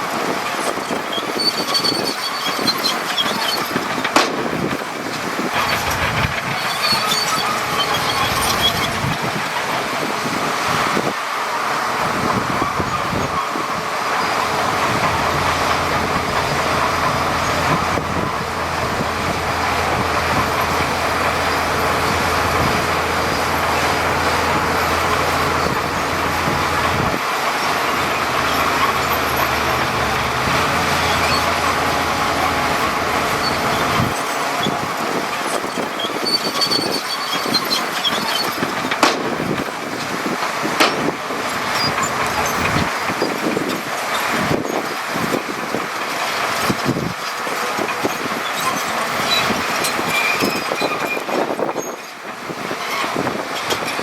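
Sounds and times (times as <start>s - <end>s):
diesel earthmoving machinery running: 0.0s - 54.0s.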